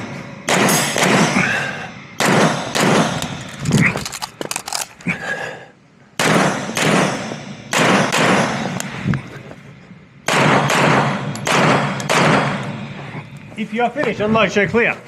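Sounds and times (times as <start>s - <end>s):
pistol shots: 2.2s - 4.9s, 6.2s - 8.6s, 10.3s - 12.6s.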